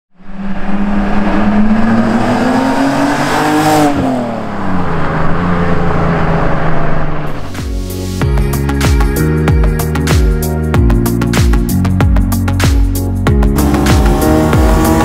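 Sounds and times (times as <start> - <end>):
car engine accelerating past: 0.2 - 7.6.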